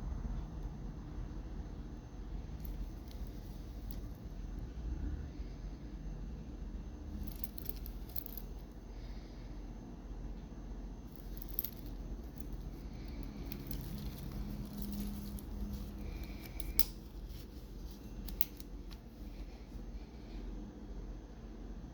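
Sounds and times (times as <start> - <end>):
steady low hum: 0.0 - 21.9
light clicks of a wristwatch: 11.1 - 19.5
packaging rustling: 11.2 - 19.2.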